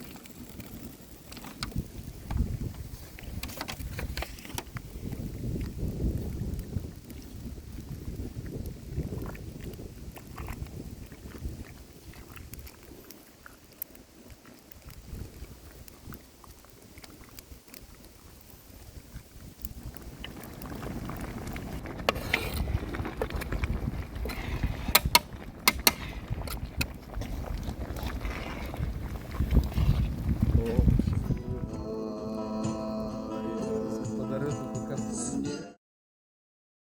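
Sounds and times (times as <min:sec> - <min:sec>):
wind rumbling on microphone: 0:00.0 - 0:33.3
sharp clicks and pops: 0:19.4 - 0:28.2.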